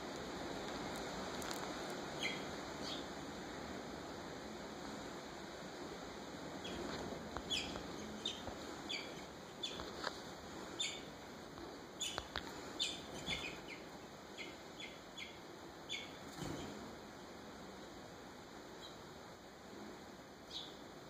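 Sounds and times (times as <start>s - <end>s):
small bird chirping: 2.1s - 3.1s, 6.6s - 10.0s, 10.8s - 11.2s, 12.0s - 16.8s, 20.5s - 20.8s.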